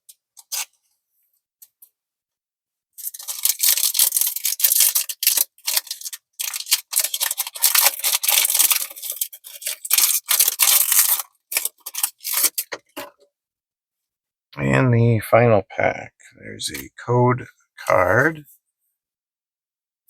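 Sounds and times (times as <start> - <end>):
foil wrapper crinkling and tearing: 3.0 - 13.0.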